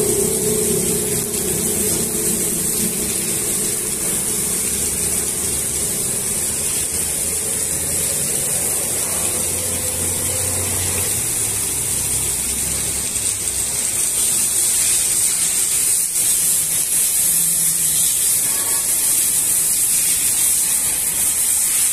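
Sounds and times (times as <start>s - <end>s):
low hum: 0.0s - 8.1s
rain falling: 0.0s - 21.9s.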